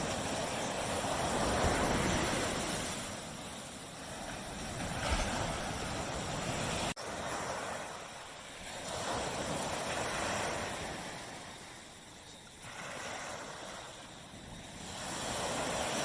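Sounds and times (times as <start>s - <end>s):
small waves washing on beach: 0.0s - 16.0s.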